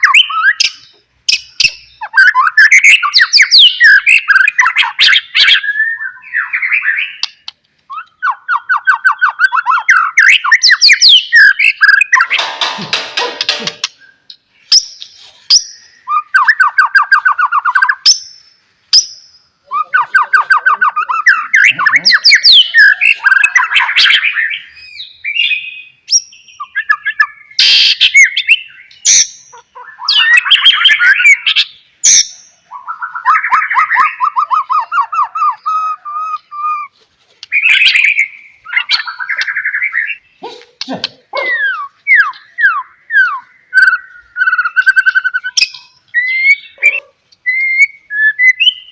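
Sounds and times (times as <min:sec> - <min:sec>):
bird singing trills and whistles: 0:00.0 - 0:12.5, 0:13.5 - 0:48.9.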